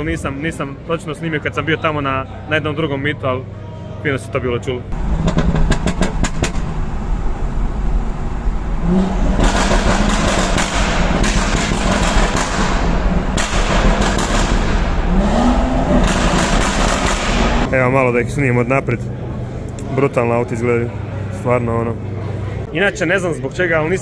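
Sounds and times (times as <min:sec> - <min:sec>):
car engine revving: 0:04.9 - 0:24.0
exhaust pops and crackles: 0:05.0 - 0:06.8, 0:09.3 - 0:17.7.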